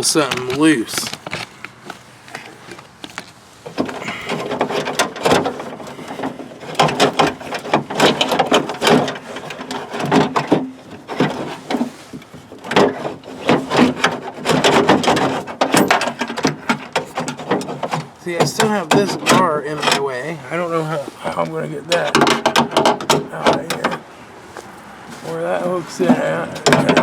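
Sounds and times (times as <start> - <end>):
rattling of door latch parts: 3.7 - 20.3, 21.3 - 24.1, 26.0 - 27.0.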